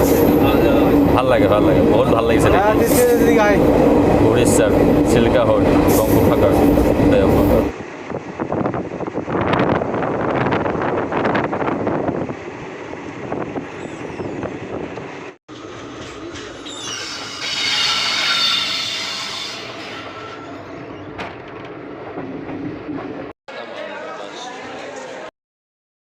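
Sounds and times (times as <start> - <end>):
train wheels clattering on rails: 14.9 - 18.7
high-pitched wheel squeal: 15.9 - 21.1.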